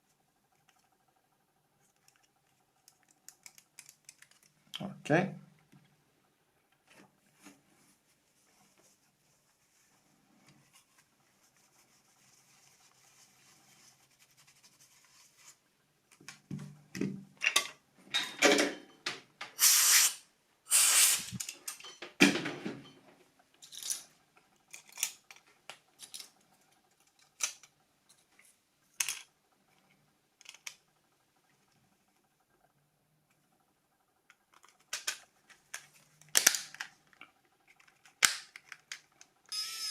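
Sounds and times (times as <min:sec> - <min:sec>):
plastic phone parts clicking: 0:02.9 - 0:04.6, 0:24.7 - 0:26.4, 0:27.0 - 0:27.7, 0:34.3 - 0:39.4.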